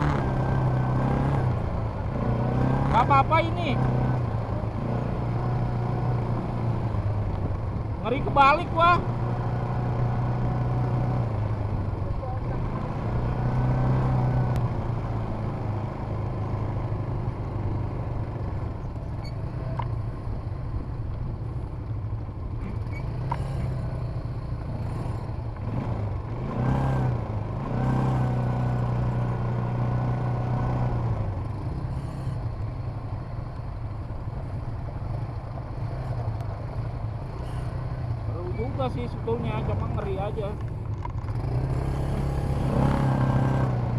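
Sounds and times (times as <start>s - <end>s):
quad bike engine revving: 0.0s - 7.3s, 8.1s - 18.2s, 22.6s - 32.5s, 37.3s - 43.9s.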